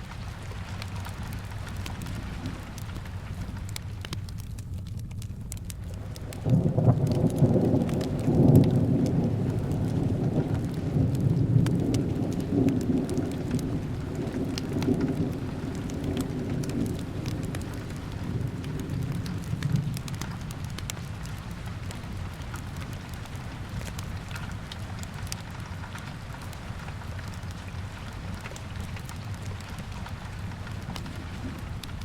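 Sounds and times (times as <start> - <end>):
fireplace crackling: 0.0 - 32.0
steady rain: 0.0 - 32.0
thunder rolling: 5.9 - 20.8.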